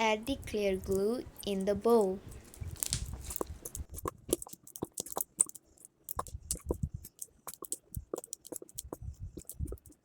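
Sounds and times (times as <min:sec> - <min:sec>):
glue bottle clicking and squeezing: 0:02.4 - 0:10.0.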